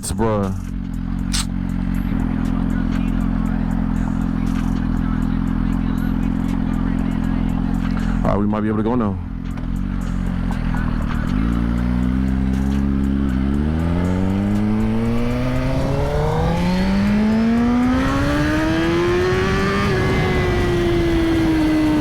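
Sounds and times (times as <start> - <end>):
motorcycle engine accelerating hard: 0.5 - 8.4, 9.2 - 22.0.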